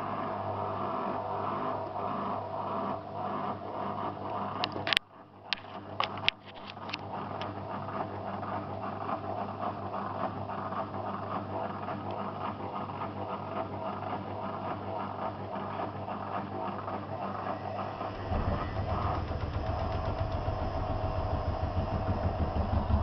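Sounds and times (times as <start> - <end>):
washing machine running: 0.0 - 23.0.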